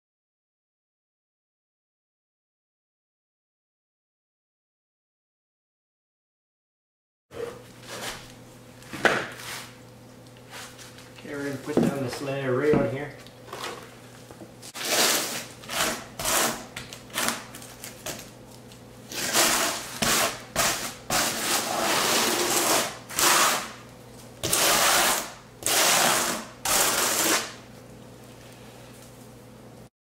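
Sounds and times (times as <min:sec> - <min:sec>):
trowel scraping mortar: 0:14.7 - 0:17.4, 0:19.1 - 0:23.8, 0:24.4 - 0:27.6.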